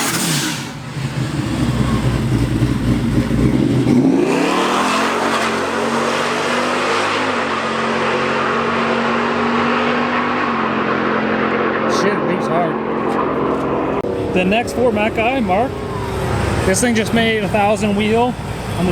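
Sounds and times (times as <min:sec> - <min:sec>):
drag car engine revving: 0:00.0 - 0:18.9.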